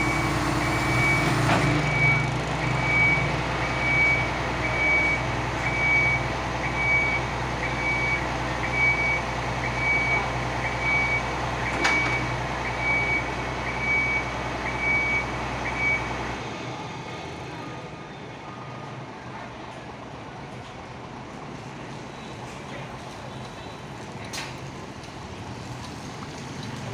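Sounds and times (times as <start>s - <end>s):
truck engine droning: 0.0s - 20.4s
high warning beeper: 1.9s - 16.1s.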